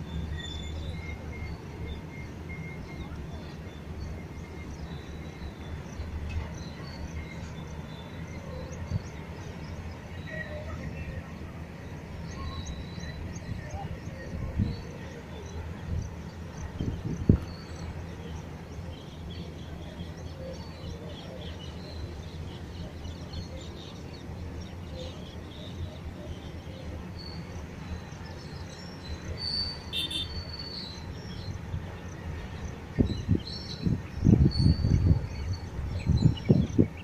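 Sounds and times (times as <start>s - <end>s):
distant freight train rumble: 0.0s - 37.0s
birds chirping: 14.9s - 35.5s
wind buffeting the microphone: 15.8s - 17.5s, 32.9s - 37.0s.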